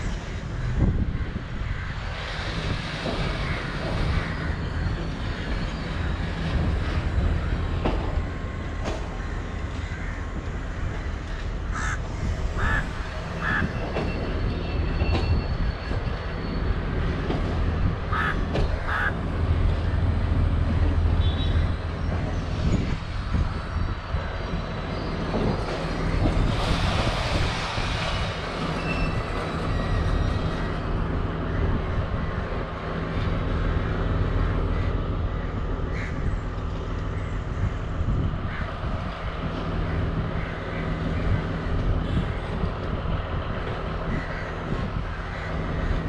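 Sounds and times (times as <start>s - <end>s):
train engine humming: 0.0s - 46.0s
crows cawing: 9.0s - 13.7s, 18.1s - 19.2s, 34.7s - 36.3s.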